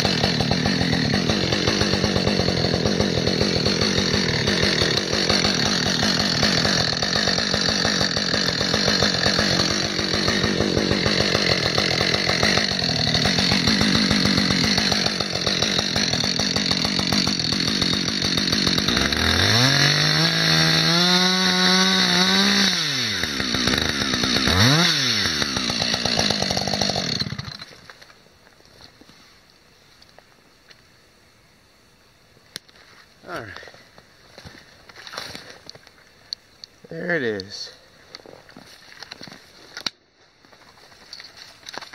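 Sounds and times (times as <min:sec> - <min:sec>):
chainsaw cutting and revving: 0:00.0 - 0:27.8.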